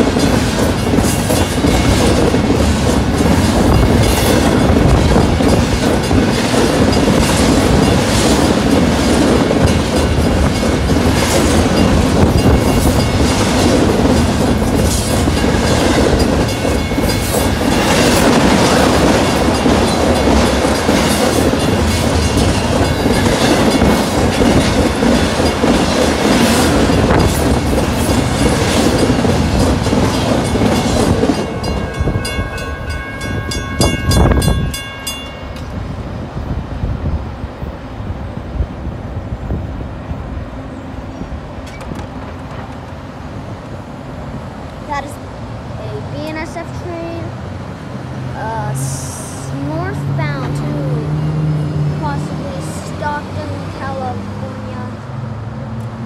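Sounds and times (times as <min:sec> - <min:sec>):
wheels clacking over rail joints: 0:00.0 - 0:35.8, 0:41.4 - 0:45.2
crossing warning bell ringing: 0:00.0 - 0:36.1, 0:48.4 - 0:55.0
freight train wheels rushing on rail: 0:00.0 - 0:56.0.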